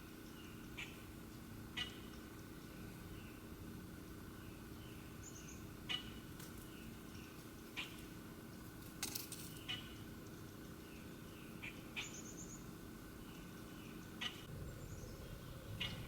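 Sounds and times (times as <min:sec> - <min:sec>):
low outdoor rumble: 0:00.0 - 0:16.0
bird trill: 0:01.8 - 0:02.3, 0:04.4 - 0:08.1, 0:10.8 - 0:16.0.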